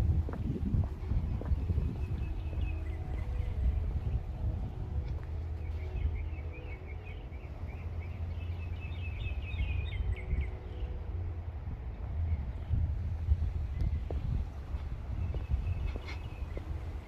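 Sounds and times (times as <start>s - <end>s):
low outdoor rumble: 0.0s - 17.0s
small birds chirping: 5.1s - 11.0s, 13.6s - 17.0s.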